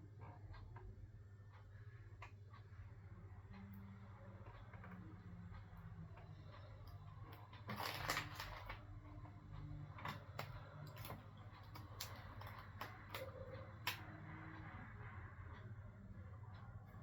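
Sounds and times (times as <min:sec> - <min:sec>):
low steady hum: 0:00.0 - 0:17.0
light clicks and taps: 0:03.5 - 0:14.2.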